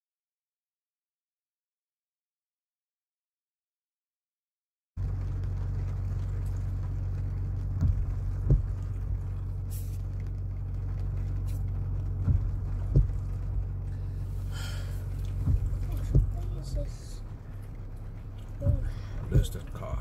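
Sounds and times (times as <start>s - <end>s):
low engine drone: 5.0s - 20.0s
dull thumps: 7.6s - 20.0s.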